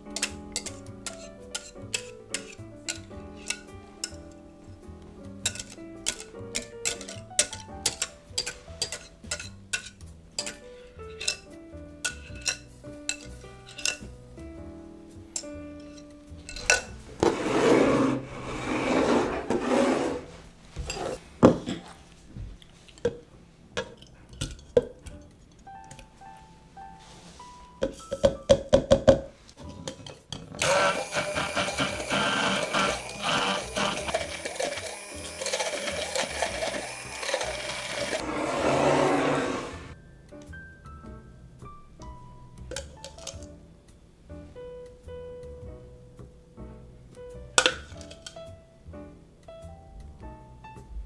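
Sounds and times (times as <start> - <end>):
utensil scraping on a dish: 17.2 - 21.2, 30.6 - 40.0
immersion blender running: 30.6 - 40.0.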